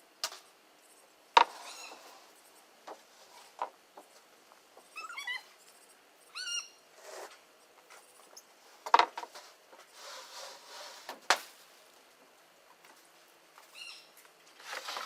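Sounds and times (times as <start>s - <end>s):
rustling scrape: 1.4s - 3.6s, 7.0s - 7.5s, 8.6s - 11.9s, 14.5s - 15.0s
bird-like animal call: 4.9s - 5.5s, 6.3s - 6.8s.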